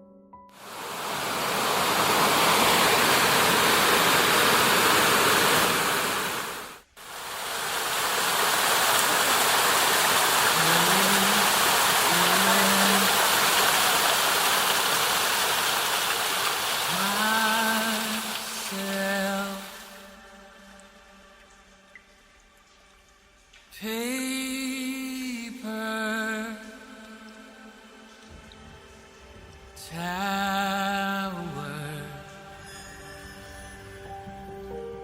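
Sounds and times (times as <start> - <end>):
mountain stream rushing: 0.6 - 21.0.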